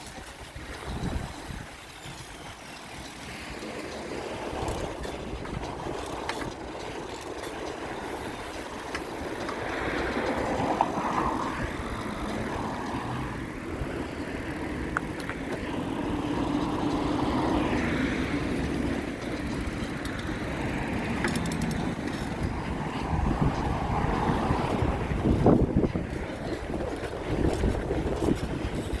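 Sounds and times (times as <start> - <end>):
low traffic rumble: 0.0 - 29.0
vehicles passing: 0.0 - 29.0.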